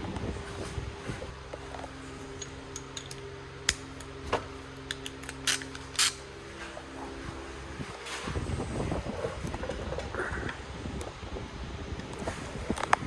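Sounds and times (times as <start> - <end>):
steady low hum: 0.0 - 13.0
hand tools and metal clinking: 0.4 - 8.6.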